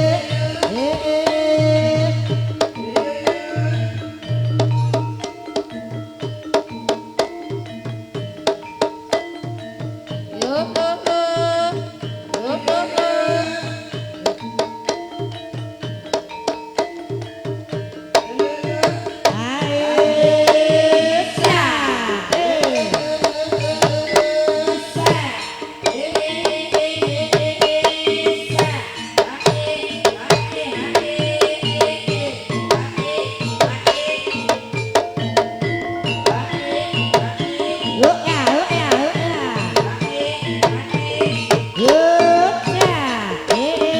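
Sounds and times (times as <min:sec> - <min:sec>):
driving drum pattern: 0:00.0 - 0:43.9
metallophone tones: 0:00.0 - 0:43.9
melody sliding in pitch: 0:02.0 - 0:05.6.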